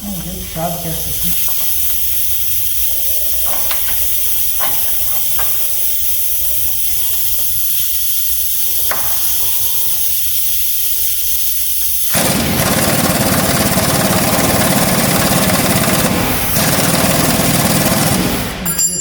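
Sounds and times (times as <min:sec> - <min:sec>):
steady hiss: 0:00.0 - 0:12.6
hand tools clicking: 0:03.4 - 0:05.8.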